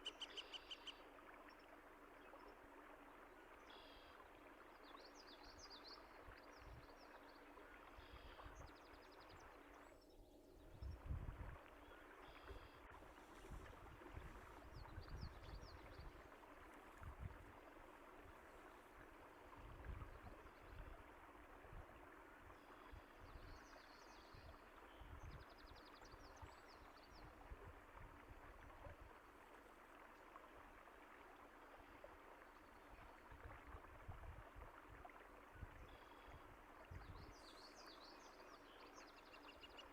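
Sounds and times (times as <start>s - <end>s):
flowing water with gurgles: 0.0s - 39.9s.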